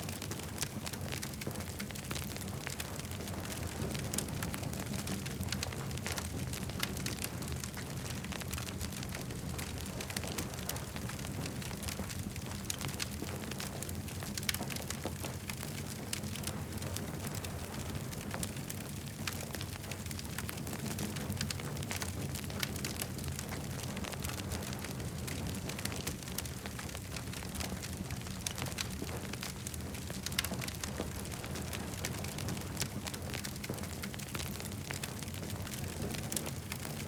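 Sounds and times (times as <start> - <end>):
campfire crackling: 0.0 - 37.0.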